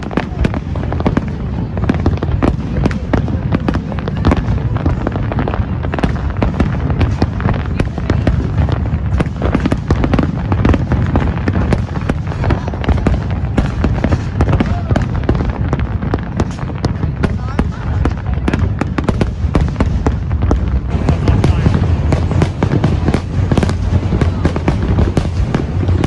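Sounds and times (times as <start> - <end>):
fireworks bangs and crackles: 0.0 - 26.0
low rumble: 19.4 - 26.0.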